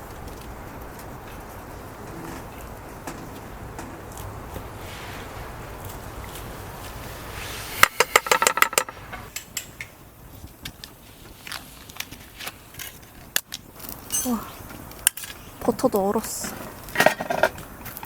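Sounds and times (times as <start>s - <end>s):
cooking gear clinking: 12.0s - 15.5s.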